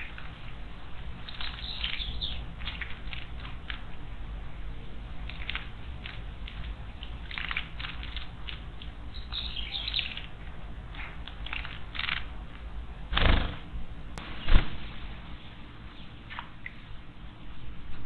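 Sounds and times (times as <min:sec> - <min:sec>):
bird chirps: 0:01.2 - 0:03.4, 0:07.0 - 0:14.2
bird wings fluttering: 0:05.2 - 0:14.7
wing flaps or thumps: 0:13.1 - 0:13.8.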